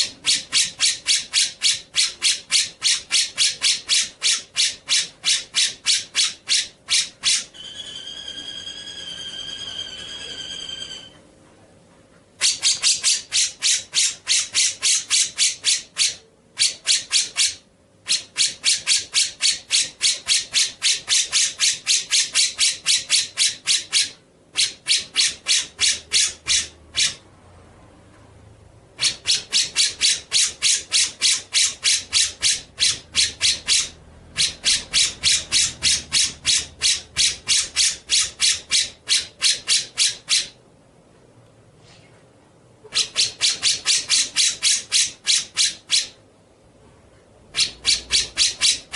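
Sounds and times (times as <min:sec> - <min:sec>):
bird chattering call: 0:00.0 - 0:11.2, 0:12.4 - 0:27.2, 0:29.0 - 0:40.6, 0:47.6 - 0:48.9.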